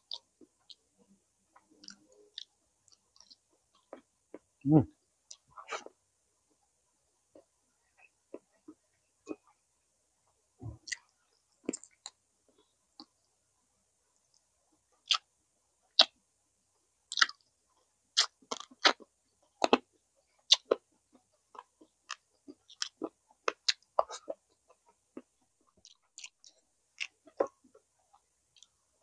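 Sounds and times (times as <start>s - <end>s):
person chewing with wet smacks: 0.0s - 0.8s, 1.6s - 4.5s, 10.6s - 13.2s, 15.0s - 15.3s, 17.1s - 28.8s.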